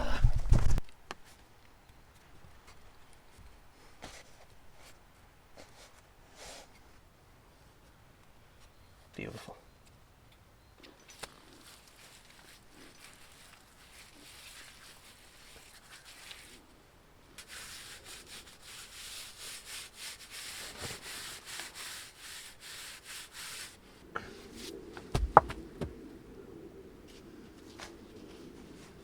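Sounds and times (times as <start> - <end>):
wood rasping strokes: 17.4 - 23.8, 25.0 - 25.9
sharp wooden knocks: 25.0 - 26.0.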